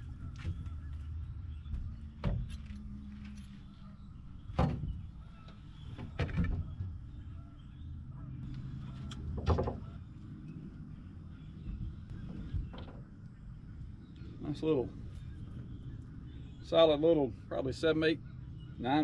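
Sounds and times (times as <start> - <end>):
low steady rumble: 0.0 - 19.0
sharp knocks and clatters: 9.2 - 9.9.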